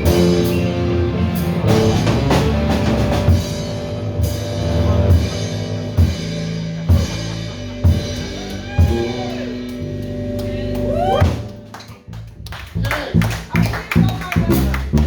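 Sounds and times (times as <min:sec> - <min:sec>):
drum kit hits: 0:00.0 - 0:09.4, 0:11.2 - 0:11.7
live rock band playing: 0:00.0 - 0:15.0.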